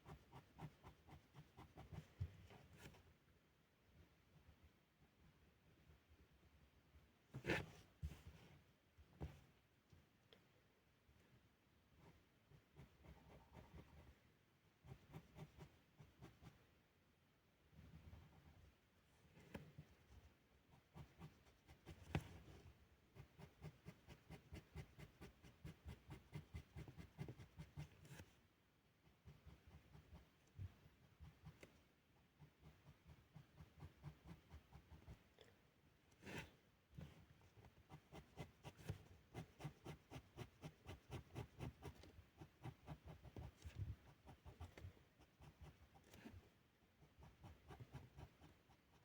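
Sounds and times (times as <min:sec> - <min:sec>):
felt-tip pen strokes on paper: 0:37.6 - 0:46.4, 0:47.0 - 0:49.0.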